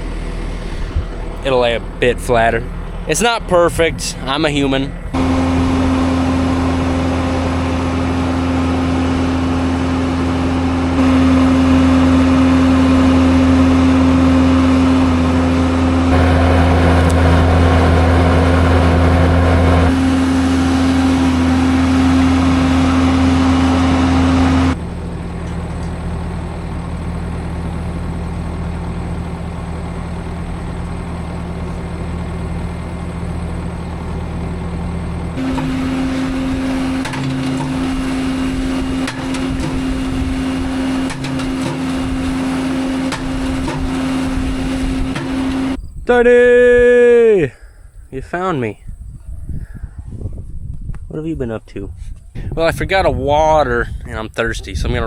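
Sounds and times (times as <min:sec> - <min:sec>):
farm machine engine running: 0:00.0 - 0:45.8.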